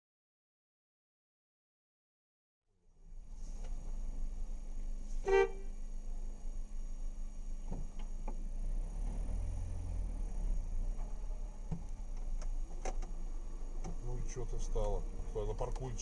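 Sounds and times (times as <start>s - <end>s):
low rumble of car in traffic: 2.8s - 16.0s
car horn beep: 5.2s - 5.8s.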